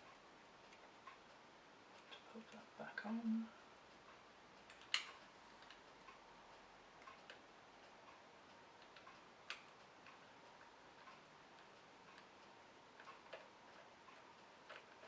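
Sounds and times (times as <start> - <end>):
soft regular tick: 0.0 - 15.0
plastic parts clicking: 14.6 - 15.0.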